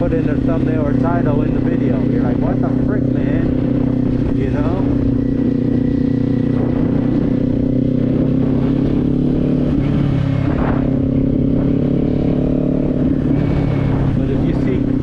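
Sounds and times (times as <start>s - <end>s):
motorcycle engine cruising: 0.0s - 15.0s
wind buffeting microphone: 0.0s - 15.0s.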